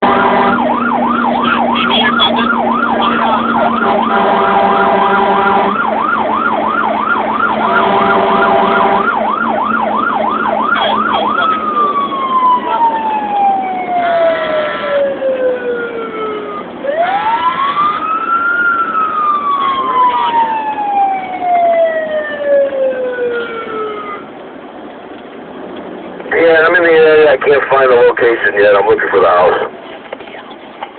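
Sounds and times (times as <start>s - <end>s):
steady horn blasts: 0.0s - 6.1s, 7.4s - 9.3s, 10.6s - 11.6s, 13.9s - 15.2s
fire engine siren: 0.0s - 24.7s.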